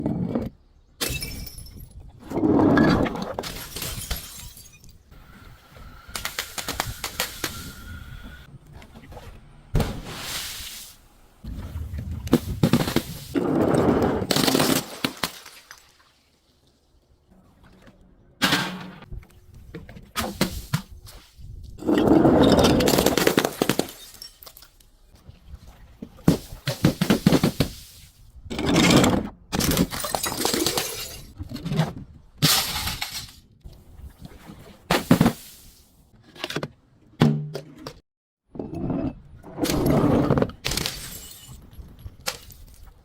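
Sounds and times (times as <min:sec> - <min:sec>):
objects smashing and crunching: 0:14.1 - 0:15.7, 0:22.4 - 0:24.8.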